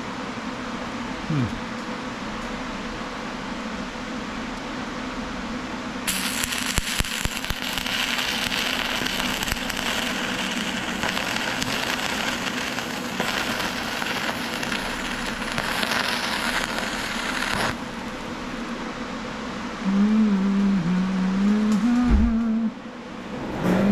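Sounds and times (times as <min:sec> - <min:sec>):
welder arc crackling: 0:06.1 - 0:18.6.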